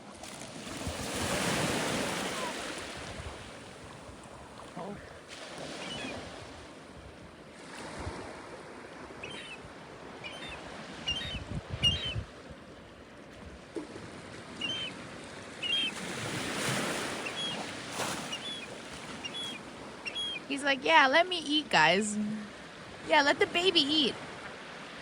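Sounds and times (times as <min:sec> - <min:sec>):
gulls calling: 0:05.7 - 0:06.2, 0:09.2 - 0:09.6, 0:10.2 - 0:12.2, 0:14.5 - 0:24.2.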